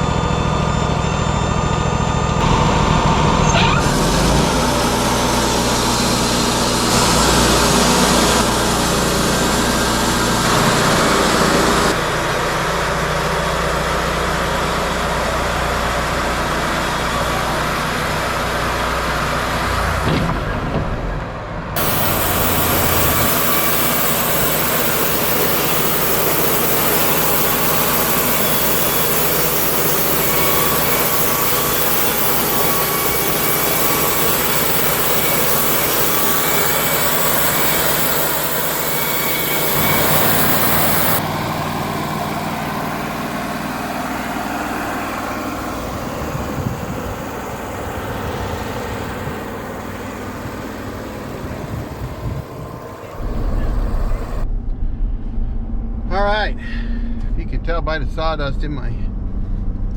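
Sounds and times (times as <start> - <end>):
sawmill engine running: 0.0 - 54.5
band saw blade cutting log: 21.8 - 41.4.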